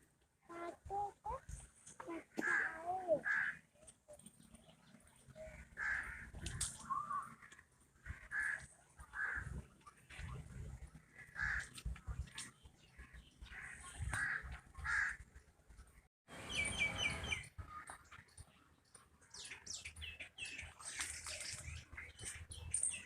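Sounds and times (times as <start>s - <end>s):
crows cawing: 2.4s - 3.6s, 5.8s - 6.4s, 7.4s - 9.5s, 11.1s - 11.7s, 13.5s - 15.2s.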